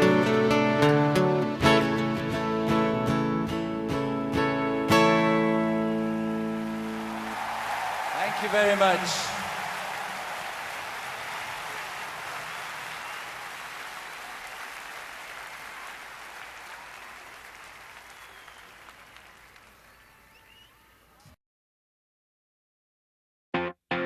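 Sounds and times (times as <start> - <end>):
audience applauding: 6.1 - 20.8.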